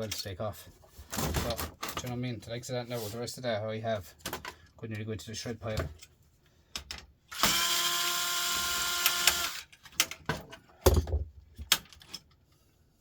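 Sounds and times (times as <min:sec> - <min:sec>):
cordless screwdriver running: 0:07.4 - 0:09.7.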